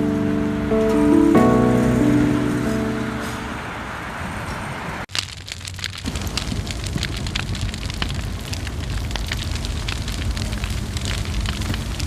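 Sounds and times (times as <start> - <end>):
wood fire crackling: 5.0 - 12.0.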